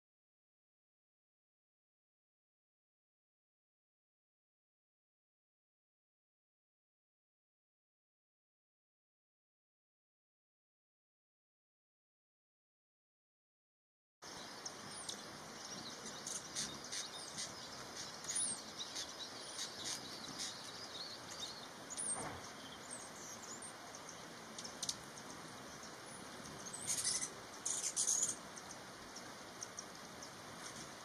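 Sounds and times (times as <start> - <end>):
faint steady hiss: 14.2 - 31.0
small birds chirping: 14.2 - 31.0.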